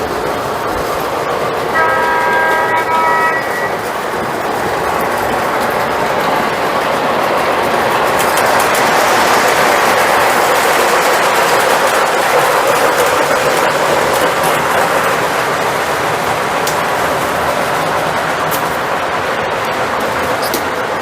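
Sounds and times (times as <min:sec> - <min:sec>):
model train wheels and motor: 0:00.0 - 0:21.0
train horn chord: 0:01.7 - 0:04.0.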